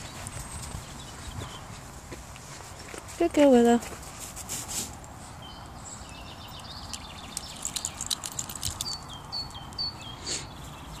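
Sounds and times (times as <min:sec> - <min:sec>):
small clicks and rustles: 0:06.6 - 0:09.7.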